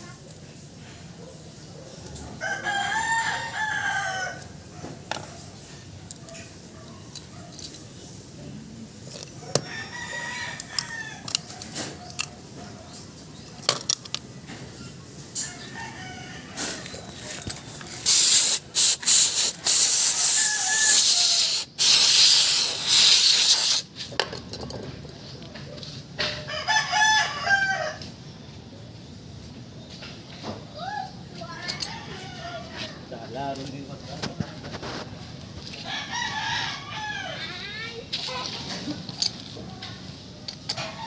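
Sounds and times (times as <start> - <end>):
rooster crowing: 2.4 - 4.6, 9.5 - 11.8, 15.4 - 17.1, 26.4 - 28.1, 35.8 - 37.6
loud hissing bursts: 17.9 - 23.9.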